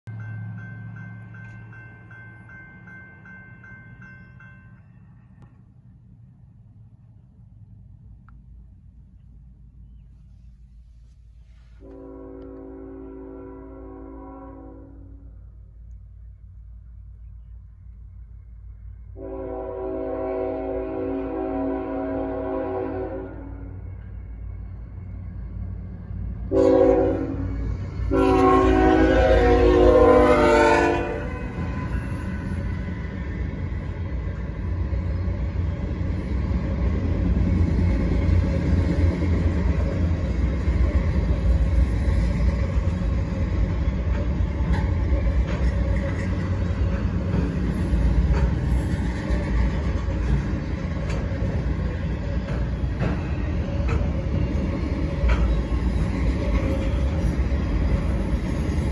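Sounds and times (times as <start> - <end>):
locomotive air horn: 11.7 - 15.3, 19.2 - 23.8, 26.5 - 32.1
freight cars rumbling and clattering: 31.2 - 58.9.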